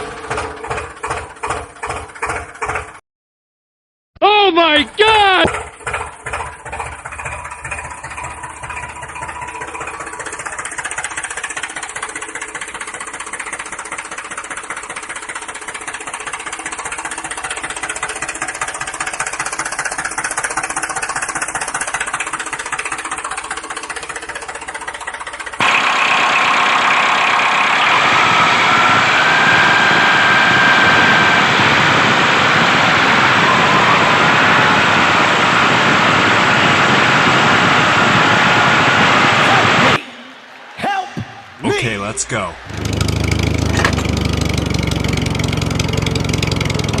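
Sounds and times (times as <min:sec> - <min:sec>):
motor running with fast chatter: 0:05.2 - 0:31.4.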